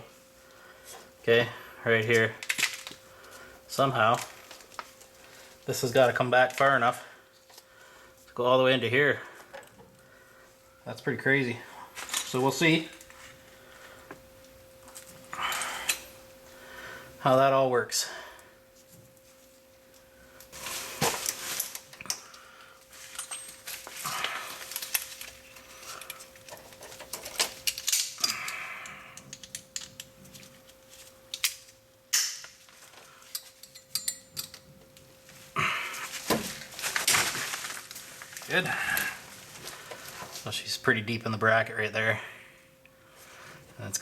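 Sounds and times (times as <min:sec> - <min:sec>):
faint steady hum: 0:00.0 - 0:44.0
metallic clinks and rattles: 0:23.0 - 0:24.0, 0:33.2 - 0:34.7.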